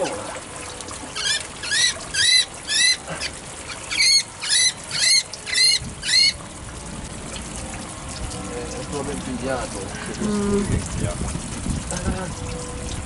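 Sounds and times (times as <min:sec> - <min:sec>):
bird harsh distress calls: 0:01.2 - 0:06.4.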